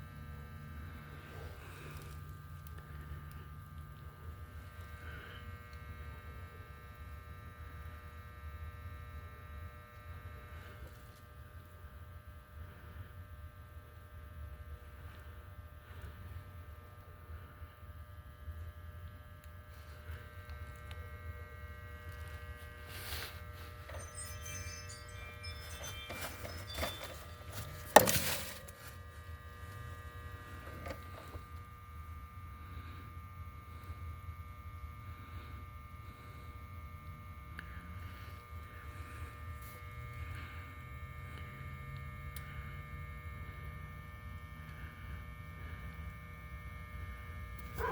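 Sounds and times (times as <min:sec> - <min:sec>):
low machine hum: 0:00.0 - 0:47.9
faint steady tones: 0:19.4 - 0:47.9
faint high tones: 0:23.2 - 0:29.0.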